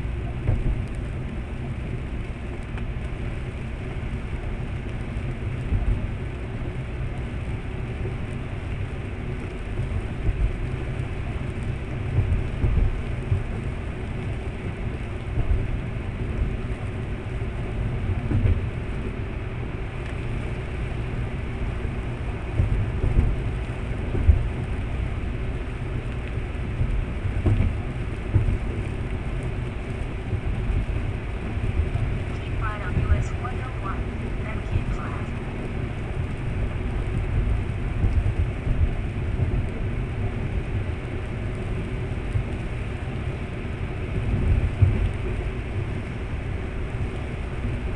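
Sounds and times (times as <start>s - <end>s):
car engine and tyres rumbling: 0.0s - 47.9s
low bumps: 17.8s - 42.9s.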